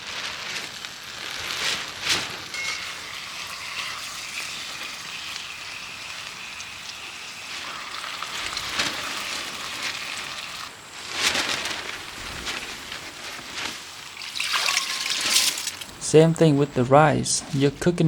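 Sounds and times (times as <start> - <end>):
food sizzling in a pan: 1.8 - 11.0.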